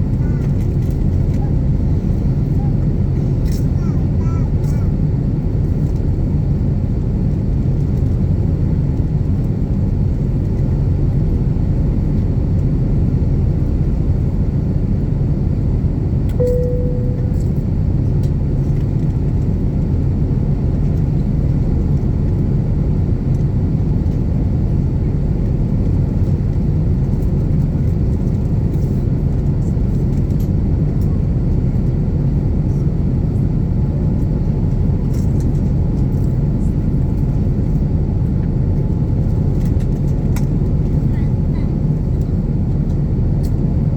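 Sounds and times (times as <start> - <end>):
jet engines rumbling in cabin: 0.0 - 43.9
short cabin tone: 16.4 - 18.0.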